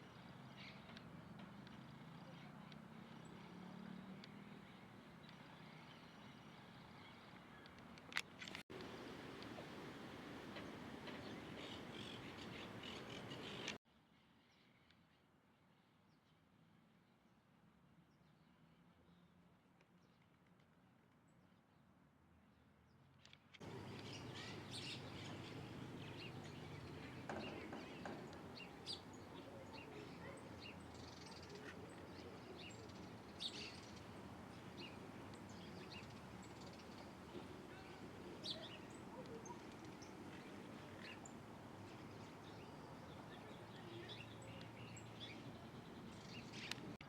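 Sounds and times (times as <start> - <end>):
outdoor background noise: 0.0 - 47.0
small birds chirping: 8.8 - 13.8, 23.6 - 47.0.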